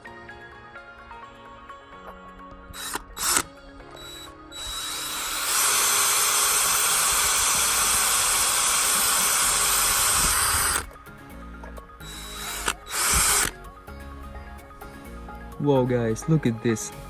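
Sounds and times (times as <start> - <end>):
cordless drill whirring: 2.7 - 11.0, 12.0 - 13.7.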